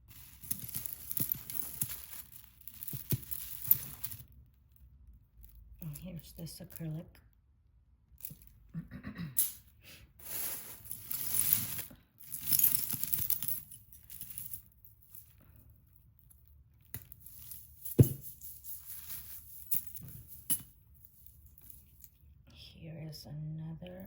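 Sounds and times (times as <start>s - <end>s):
packaging rustling and crinkling: 0.0s - 4.3s, 10.2s - 13.6s, 18.8s - 20.1s.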